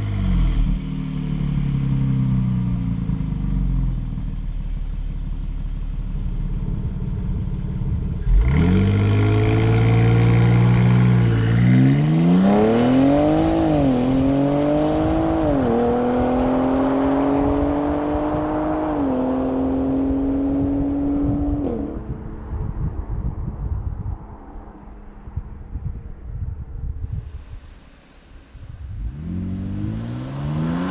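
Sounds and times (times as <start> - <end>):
car engine accelerating: 0.0 - 26.6, 28.9 - 30.9.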